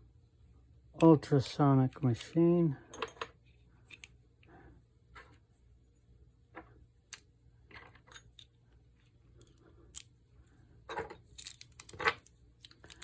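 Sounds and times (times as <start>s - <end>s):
small metal parts clicking: 9.4s - 10.2s, 10.9s - 13.0s.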